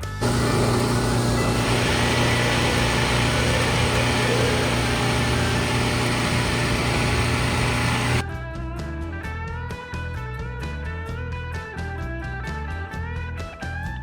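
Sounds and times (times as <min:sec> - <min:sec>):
mechanical running hum: 0:00.0 - 0:08.2.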